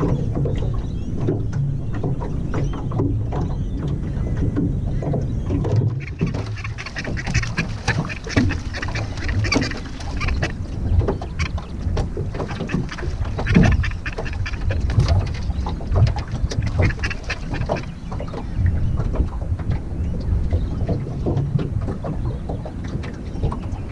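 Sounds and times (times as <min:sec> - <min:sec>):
bird quacking calls: 0:05.9 - 0:18.0.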